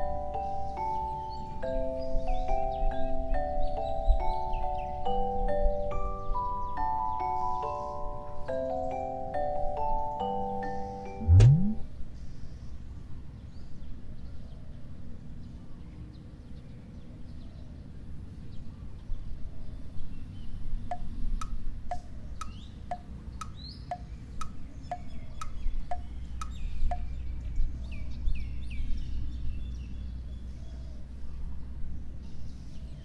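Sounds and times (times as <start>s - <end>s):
short high chirps: 11.1s - 11.8s.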